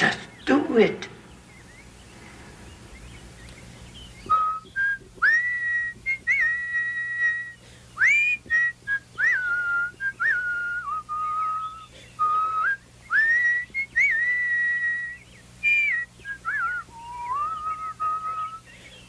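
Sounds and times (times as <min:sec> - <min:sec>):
person whistling a birdlike tune: 0:04.2 - 0:18.7.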